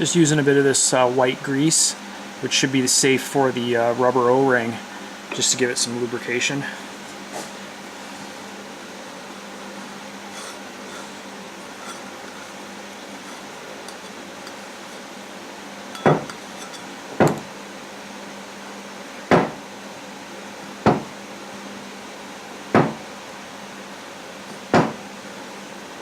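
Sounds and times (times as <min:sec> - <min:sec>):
sharp knocks on metal sleeve: 0:16.0 - 0:16.4, 0:24.7 - 0:25.0.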